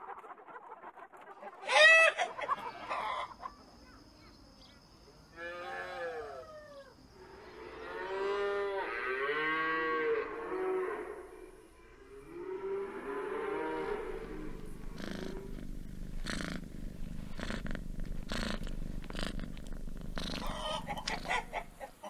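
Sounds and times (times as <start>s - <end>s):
chicken squawking: 0.0s - 3.5s, 20.4s - 22.0s
cattle mooing: 12.2s - 15.5s.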